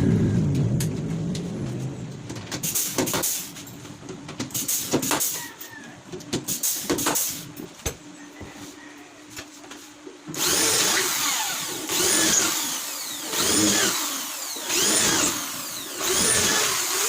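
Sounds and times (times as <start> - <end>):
power tool motor: 10.4 - 17.0.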